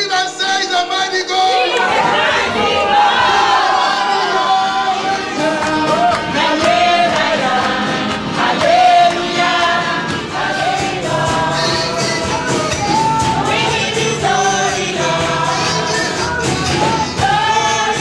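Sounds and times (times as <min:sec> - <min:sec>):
congregation singing a gospel song: 0:00.0 - 0:18.0
percussion beat: 0:05.0 - 0:18.0.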